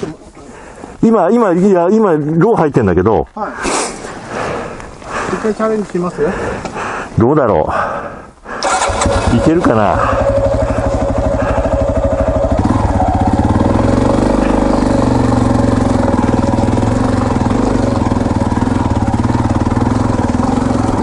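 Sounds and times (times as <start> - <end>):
motorcycle engine revving: 8.6 - 21.0.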